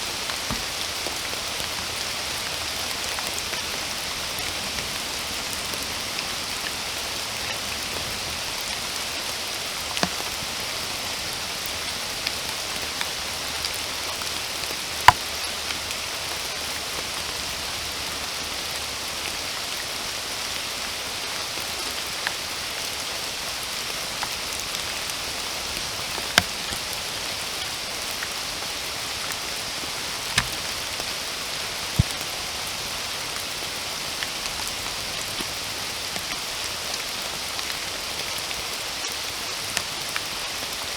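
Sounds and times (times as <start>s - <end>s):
steady rainfall: 0.0s - 40.9s
raindrops ticking: 23.5s - 32.8s.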